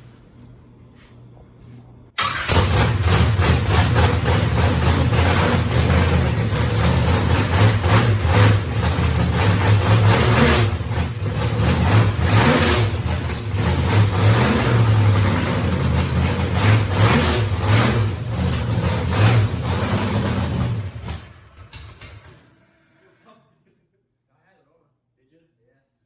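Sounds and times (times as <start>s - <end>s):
race car engine revving: 2.2s - 21.6s.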